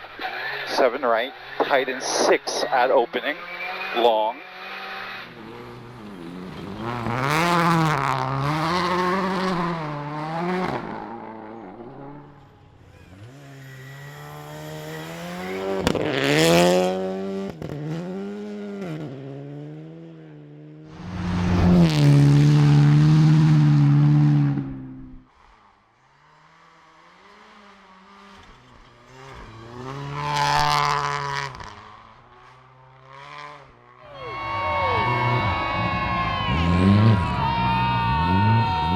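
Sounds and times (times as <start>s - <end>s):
rally car engines revving: 0.0s - 38.9s
car passing by: 20.9s - 24.7s, 33.1s - 38.9s.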